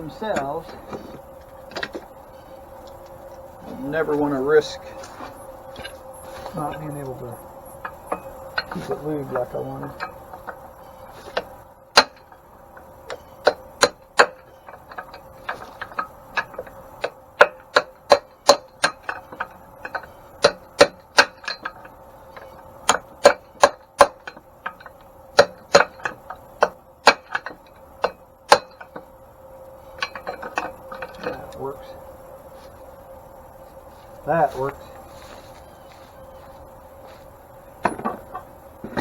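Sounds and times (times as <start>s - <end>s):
faint steady hum: 0.0s - 39.0s
hammer tapping on steel: 11.3s - 29.1s.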